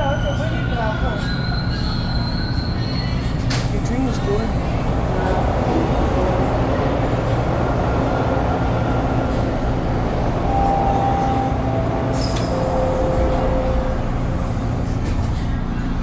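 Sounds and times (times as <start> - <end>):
train wheels rumbling on rails: 2.0 - 16.0
faint whine tones: 4.5 - 15.6.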